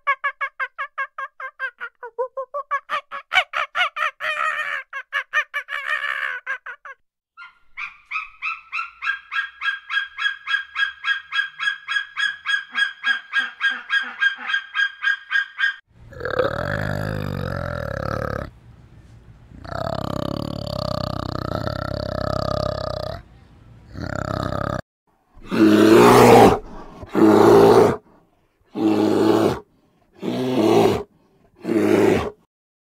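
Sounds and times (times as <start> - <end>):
orangutan rough grunting calls: 16.1 - 18.5, 19.6 - 23.2, 25.4 - 28.0, 28.7 - 29.6, 30.2 - 32.4.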